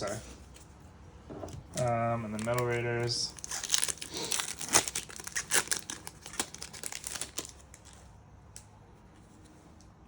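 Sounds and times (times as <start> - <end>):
foil pack crinkling and tearing: 1.8 - 8.1.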